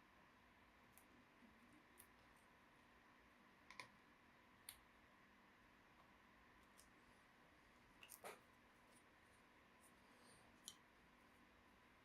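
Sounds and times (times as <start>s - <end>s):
faint small clicks: 3.7s - 4.0s.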